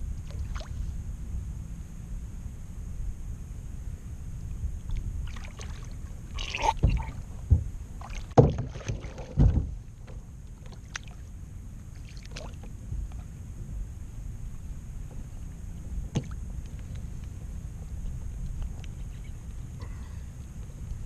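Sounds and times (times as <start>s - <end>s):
steady low rumble: 0.0s - 21.0s
knocks on kayak hull: 8.4s - 9.8s.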